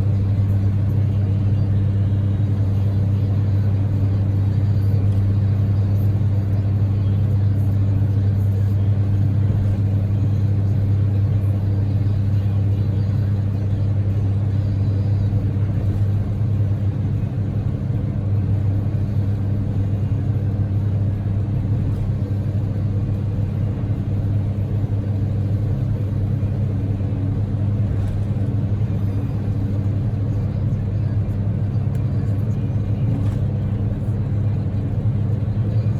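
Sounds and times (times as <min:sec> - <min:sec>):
car engine drone in cabin: 0:00.0 - 0:35.9
tyre road noise: 0:00.0 - 0:35.9.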